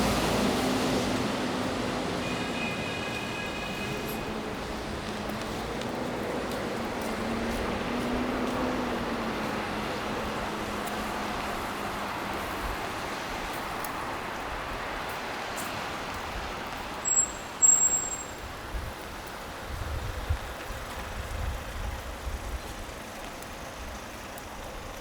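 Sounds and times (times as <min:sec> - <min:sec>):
passing vehicle engine hum: 0:00.0 - 0:14.4
road noise: 0:00.0 - 0:25.0.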